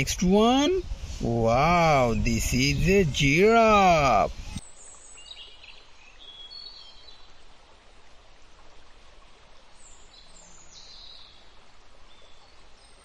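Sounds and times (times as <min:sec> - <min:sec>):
small birds chirping: 0:00.0 - 0:07.3
low even hiss: 0:00.0 - 0:13.0.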